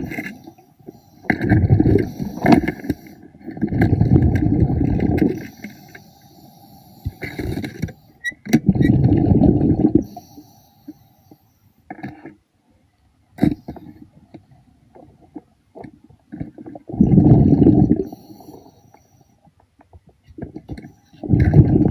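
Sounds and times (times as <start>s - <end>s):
diver exhaling bubbles: 1.3s - 3.0s, 3.6s - 5.6s, 8.6s - 10.2s, 16.4s - 18.5s, 21.2s - 21.9s.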